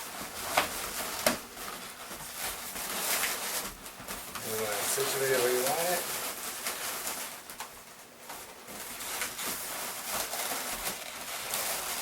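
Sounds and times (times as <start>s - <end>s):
balloons rubbing and squeaking: 0.0s - 7.6s, 8.6s - 12.0s.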